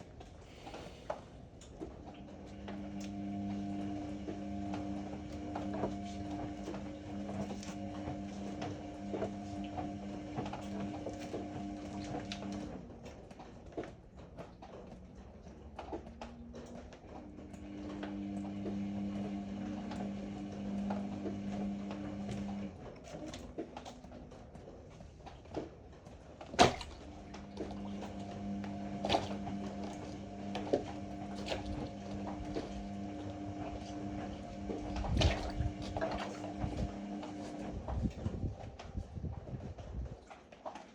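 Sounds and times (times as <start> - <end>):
washer drum motor humming: 0.1 - 14.9, 15.5 - 40.9.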